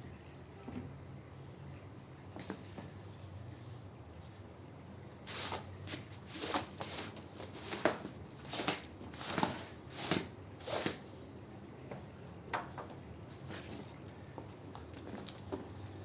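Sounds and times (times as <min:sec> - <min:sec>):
scrubbing wet carpet: 0:05.2 - 0:11.1.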